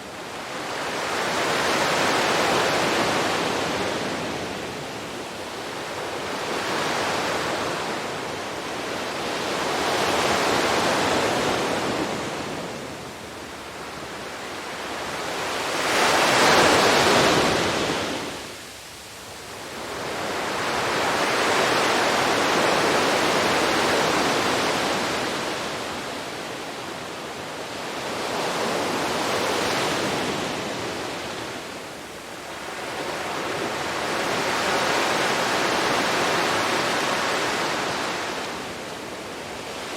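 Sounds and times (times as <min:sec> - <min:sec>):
sea waves breaking on beach: 0:13.8 - 0:18.5, 0:19.7 - 0:39.9.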